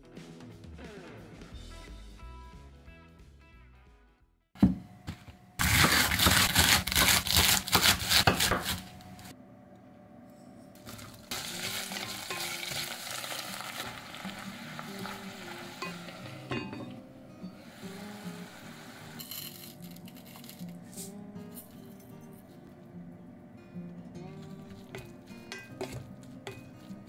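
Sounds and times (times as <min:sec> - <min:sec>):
greens sizzling in oil: 0:10.9 - 0:16.6, 0:17.6 - 0:19.3
pot lid clink: 0:15.8 - 0:17.0, 0:25.0 - 0:26.7.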